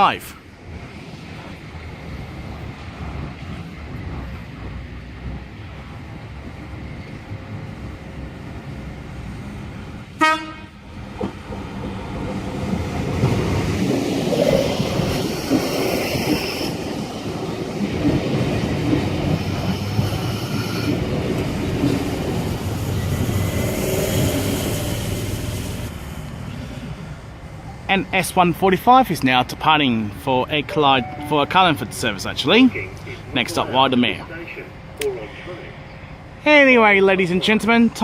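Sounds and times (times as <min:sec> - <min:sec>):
train rumble: 0:00.1 - 0:27.6
train horn blast: 0:10.2 - 0:10.8.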